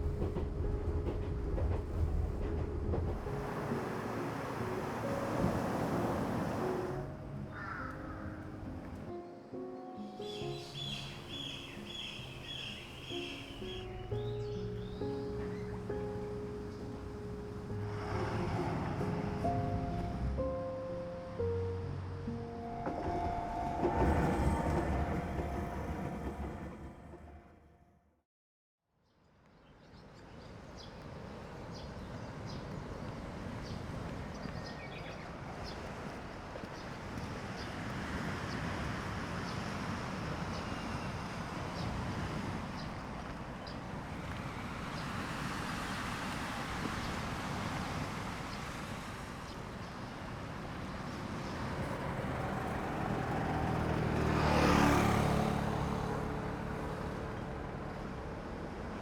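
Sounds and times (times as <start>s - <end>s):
road traffic passing: 1.4s - 9.1s, 10.4s - 27.1s, 31.0s - 59.0s
vehicle passing close: 50.8s - 58.7s.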